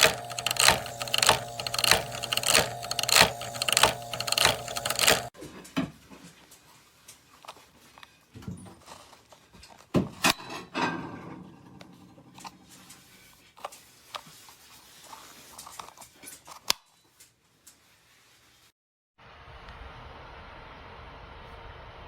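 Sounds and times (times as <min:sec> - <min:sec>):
handling clicks taps and knocks: 0:00.0 - 0:05.3.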